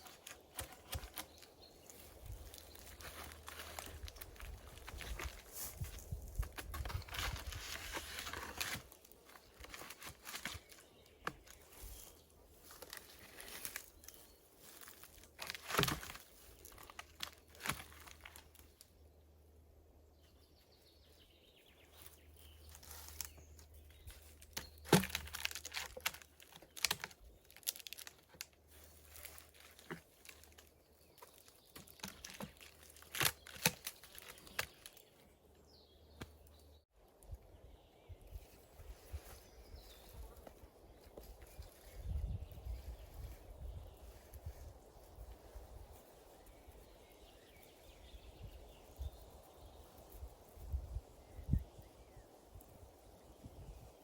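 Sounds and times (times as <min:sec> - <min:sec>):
dry brush rustling and crackling: 0:00.0 - 0:19.2, 0:21.8 - 0:36.7, 0:38.2 - 0:51.0
sharp snaps and knocks: 0:24.2 - 0:28.5, 0:31.2 - 0:35.0.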